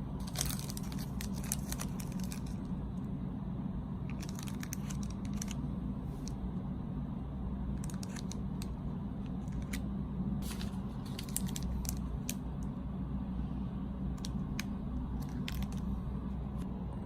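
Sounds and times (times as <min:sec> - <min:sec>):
steady low hum: 0:00.0 - 0:17.0
snack packaging crinkling: 0:00.2 - 0:02.7, 0:04.1 - 0:05.6, 0:10.4 - 0:12.4, 0:15.2 - 0:15.9.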